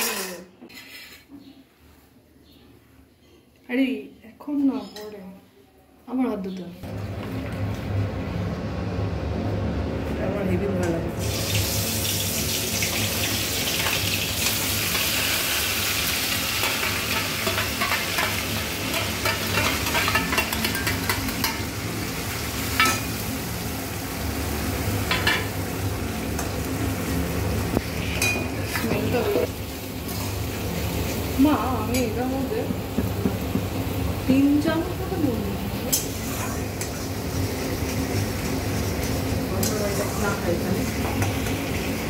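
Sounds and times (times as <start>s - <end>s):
spatula scraping and clinking wok: 0.0s - 1.3s, 16.2s - 21.7s, 28.0s - 29.5s
paste sizzling in hot oil: 11.2s - 25.2s.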